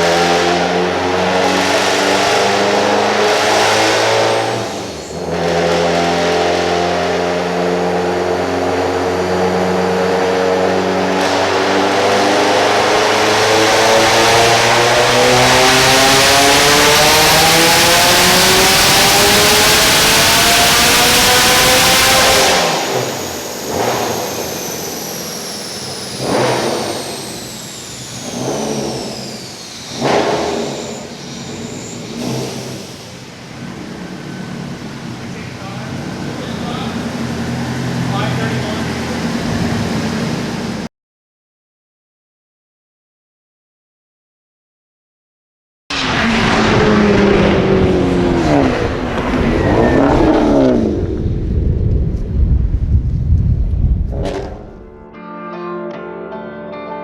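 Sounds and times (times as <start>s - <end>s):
car engine surging: 0.0s - 40.9s, 45.9s - 55.1s
high whine falling in pitch: 45.9s - 55.2s.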